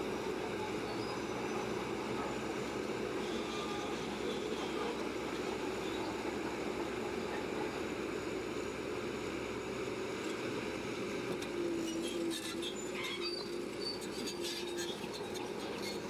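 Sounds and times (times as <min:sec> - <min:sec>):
bulldozer engine drone: 0:00.0 - 0:16.0.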